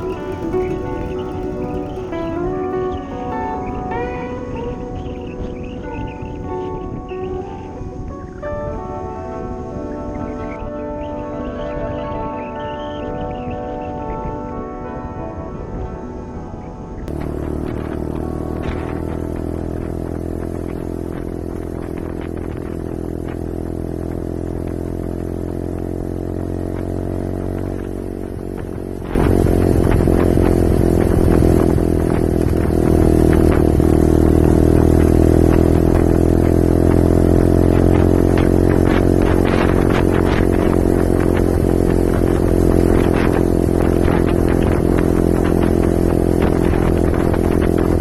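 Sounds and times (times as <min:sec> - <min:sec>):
scattered knocks: 0:00.0 - 0:07.8
motorcycle engine running: 0:00.0 - 0:14.7, 0:16.7 - 0:48.0
wind rush: 0:00.0 - 0:24.1, 0:27.5 - 0:48.0.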